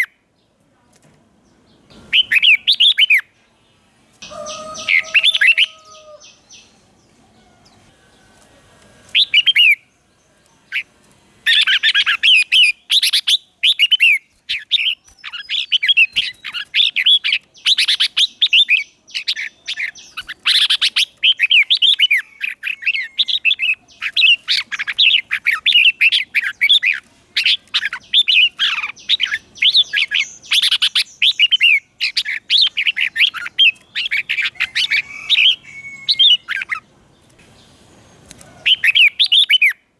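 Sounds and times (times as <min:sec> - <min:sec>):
bird singing whistled notes: 0:01.9 - 0:03.3, 0:11.5 - 0:36.8.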